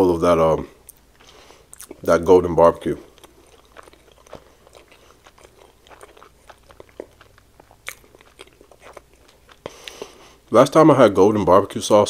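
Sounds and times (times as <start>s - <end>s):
wet chewing mouth smacks: 0.9s - 2.1s, 3.1s - 10.2s.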